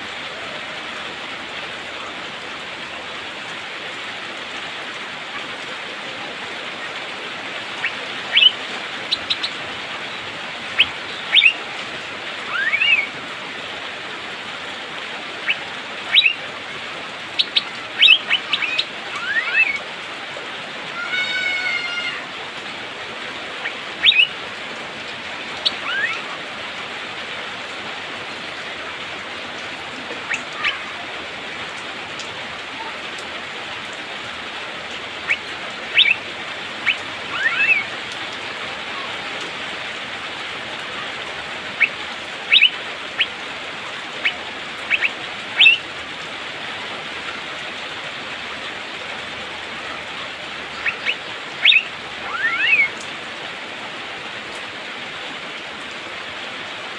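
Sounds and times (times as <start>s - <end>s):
rain hiss: 0.0s - 56.9s
bird chirping and whistling: 7.8s - 9.5s, 10.8s - 11.6s, 12.5s - 13.1s, 15.5s - 16.4s, 17.4s - 19.8s, 23.6s - 24.3s, 25.6s - 26.2s, 36.0s - 36.2s, 36.8s - 37.9s, 41.8s - 42.7s, 44.9s - 45.8s, 50.8s - 52.9s.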